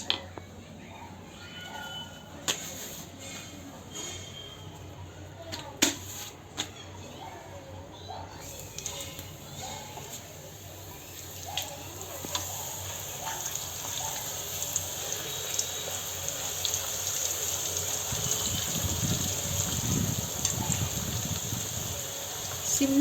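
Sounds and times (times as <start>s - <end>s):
oil sizzling in a pan: 8.4s - 23.0s
heavy bubbling oil: 8.6s - 23.0s.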